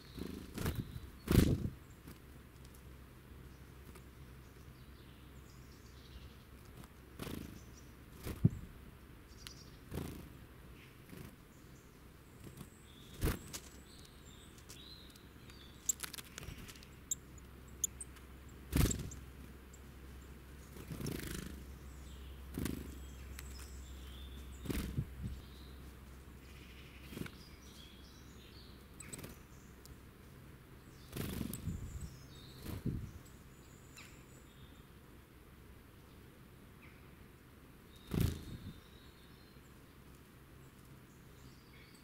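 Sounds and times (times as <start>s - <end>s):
bird wings fluttering: 0.2s - 2.2s, 8.2s - 8.6s, 12.4s - 13.8s, 15.8s - 17.0s, 18.7s - 19.2s, 20.7s - 21.6s, 22.5s - 23.0s, 24.6s - 25.4s, 31.1s - 31.9s, 32.6s - 33.1s, 38.1s - 38.7s
faint high bird chirps: 11.6s - 18.1s, 26.4s - 29.9s.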